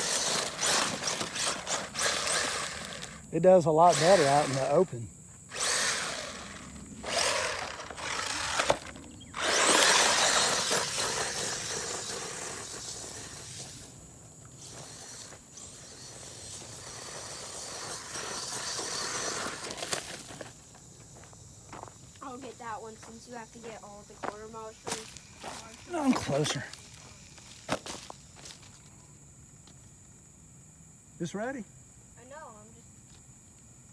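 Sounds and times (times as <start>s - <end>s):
rc truck electric motor whining: 0.0s - 20.7s, 22.2s - 28.6s.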